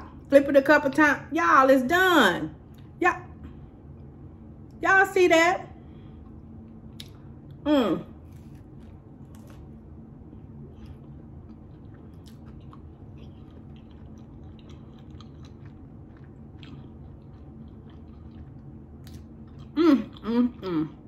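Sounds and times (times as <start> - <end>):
low steady hum: 0.0 - 21.0
person chewing: 6.2 - 7.6, 8.2 - 9.8, 10.4 - 21.0.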